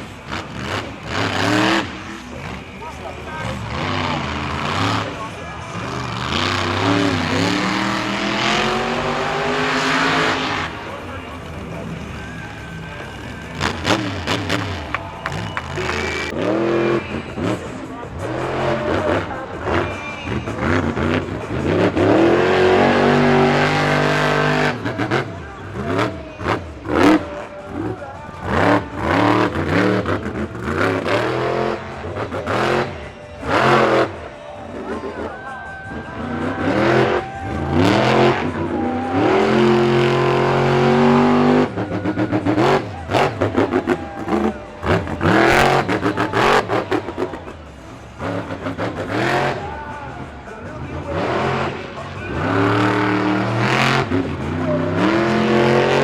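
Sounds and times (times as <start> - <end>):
monster truck engine revving: 0.0 - 56.0.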